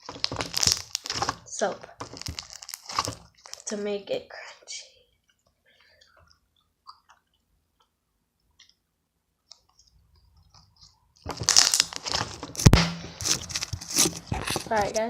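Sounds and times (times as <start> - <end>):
crunchy slime crackling and popping: 0.0 - 3.8, 9.5 - 15.0.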